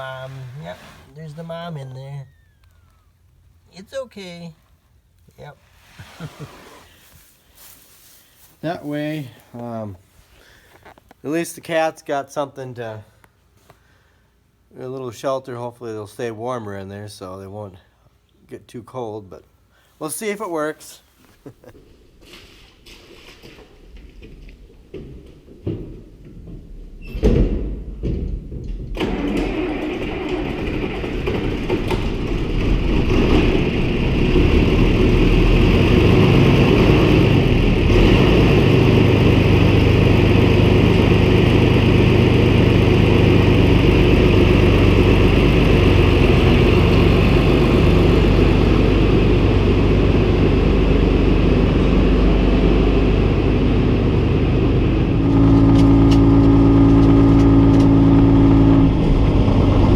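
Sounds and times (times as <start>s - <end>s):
engine cranking and starting: 28.9s - 43.0s
engine running steadily: 30.8s - 59.9s.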